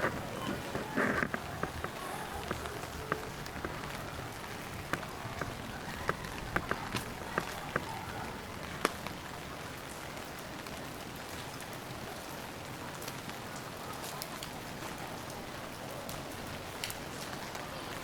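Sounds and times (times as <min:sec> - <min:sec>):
sharp drip ticks: 0:00.0 - 0:09.2
rain falling on street: 0:00.0 - 0:18.0.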